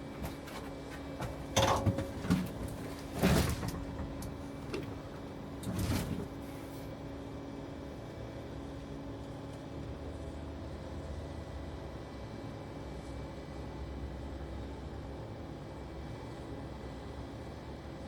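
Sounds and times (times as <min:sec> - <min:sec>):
steady low hum: 0:00.0 - 0:18.0
scraping clunks: 0:00.2 - 0:06.6.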